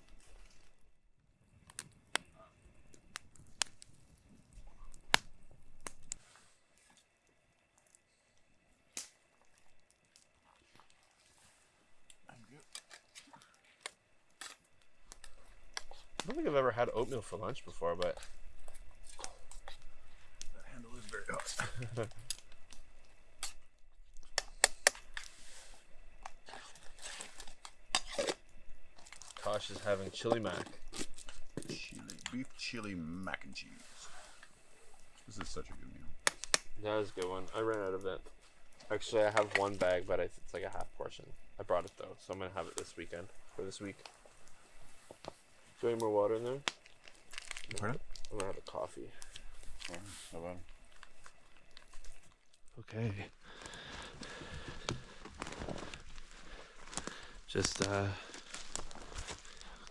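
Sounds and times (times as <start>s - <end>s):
sharp clicks of a camp pot: 1.6s - 6.2s, 6.8s - 11.0s, 12.0s - 33.6s, 34.4s - 50.0s
packaging crinkling and rustling: 26.2s - 32.4s, 43.7s - 52.7s, 53.5s - 59.9s.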